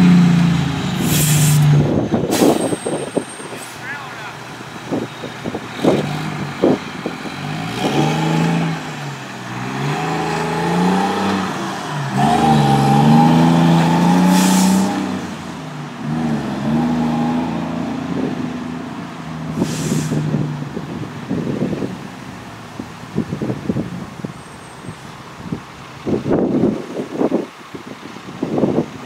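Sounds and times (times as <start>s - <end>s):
heavy diesel engine revving: 0.0s - 28.9s
air hissing: 1.0s - 1.7s, 2.3s - 2.8s, 14.2s - 15.0s, 19.6s - 20.4s.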